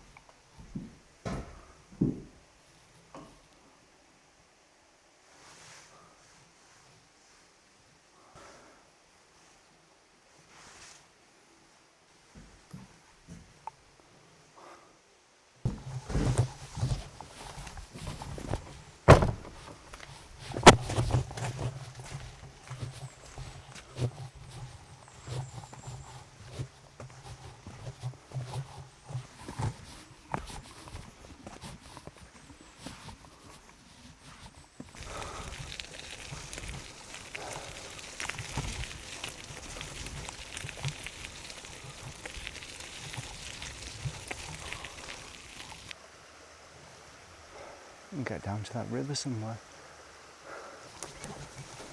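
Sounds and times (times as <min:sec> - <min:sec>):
bicycle rattling over rough path: 0:15.7 - 0:46.0, 0:51.0 - 0:51.9.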